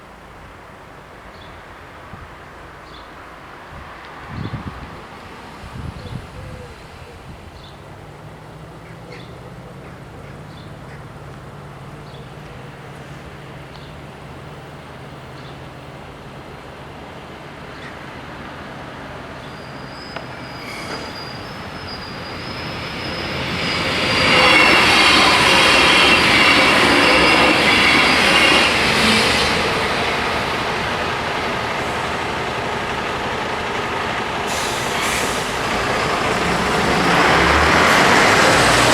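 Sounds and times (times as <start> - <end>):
diesel railcar passing: 0.0 - 38.9
wheels squealing: 19.2 - 38.9.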